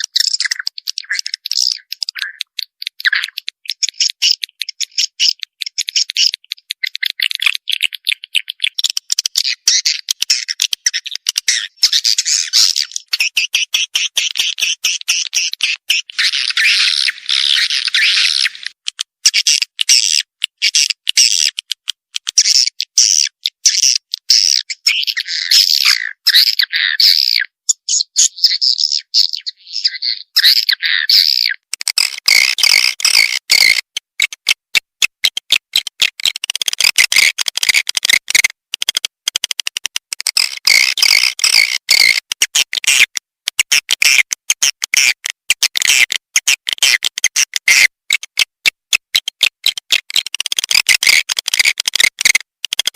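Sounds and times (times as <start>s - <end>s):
swiftlets chirping and twittering: 0.0s - 18.8s.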